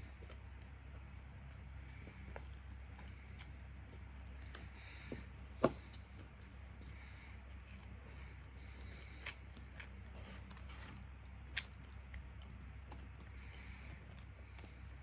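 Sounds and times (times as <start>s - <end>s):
steady low hum: 0.0s - 15.0s
person chewing: 1.5s - 15.0s
person breathing: 4.6s - 9.4s, 13.3s - 15.0s.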